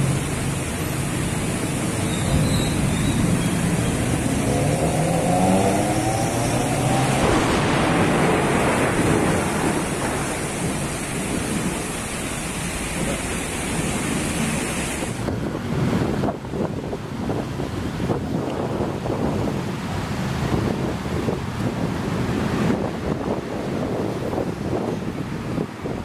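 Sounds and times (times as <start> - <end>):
tyre noise on wet road: 0.0 - 26.0
vehicle engine passing: 1.3 - 11.9.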